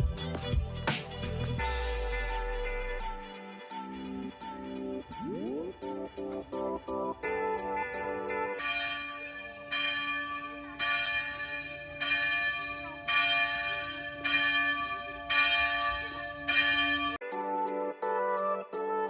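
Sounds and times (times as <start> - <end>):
music: 0.0 - 8.6, 17.2 - 19.0
bell chimes: 5.1 - 17.2.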